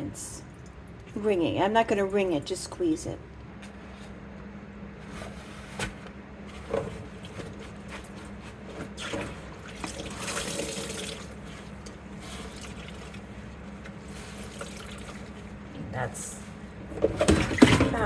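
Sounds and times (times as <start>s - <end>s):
water splashing and dripping: 9.0s - 11.4s.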